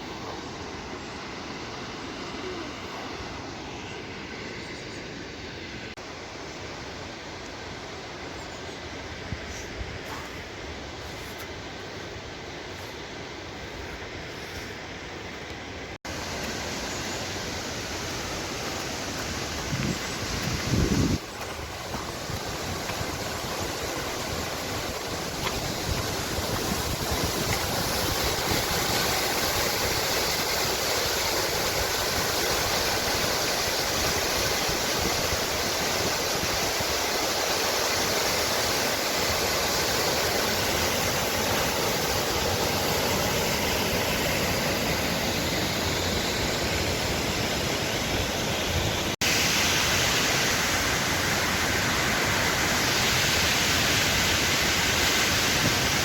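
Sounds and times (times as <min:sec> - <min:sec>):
waterfall rushing: 0:16.0 - 0:56.0.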